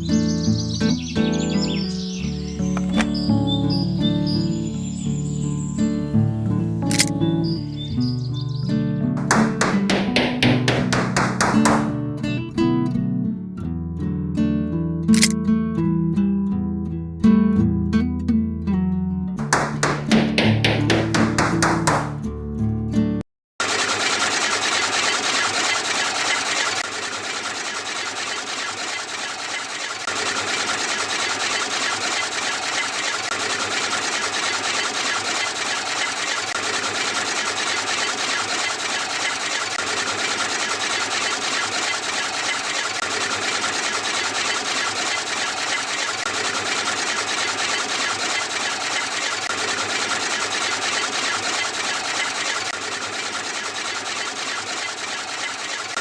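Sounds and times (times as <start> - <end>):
small electric motor running: 23.6 - 56.0.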